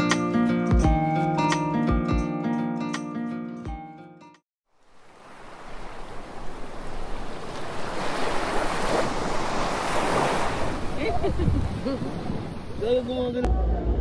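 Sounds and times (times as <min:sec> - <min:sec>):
surf rushing: 0:05.0 - 0:13.3
wind on microphone: 0:07.8 - 0:13.4.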